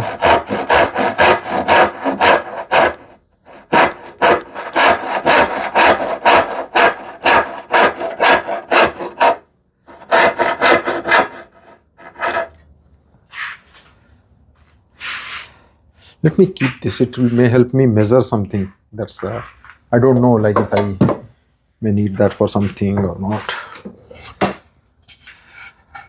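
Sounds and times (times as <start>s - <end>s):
hand saw cutting wood: 0.0s - 12.6s.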